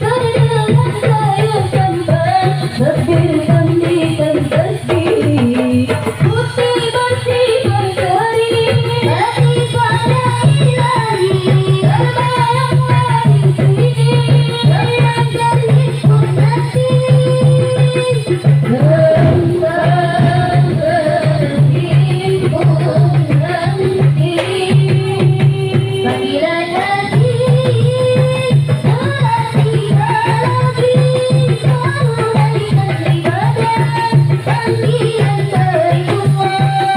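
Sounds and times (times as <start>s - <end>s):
fast hand drum beat: 0.0s - 36.9s
person singing a melody: 13.2s - 36.9s
deep bass drum pulse: 18.7s - 23.4s.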